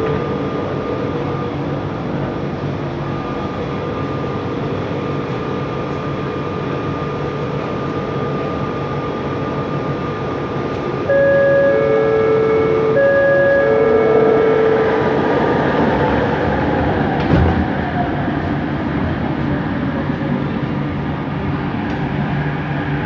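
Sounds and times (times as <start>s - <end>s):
train running rumble: 0.0s - 23.0s
faint high hum: 11.0s - 15.4s.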